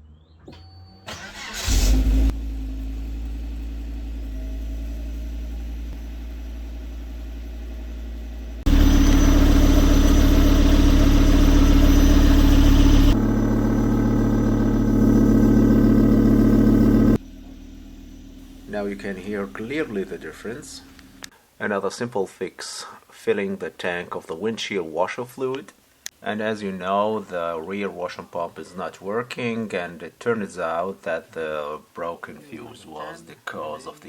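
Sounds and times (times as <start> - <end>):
car engine cranking and starting: 1.1 - 21.3
car engine idling: 1.1 - 21.3.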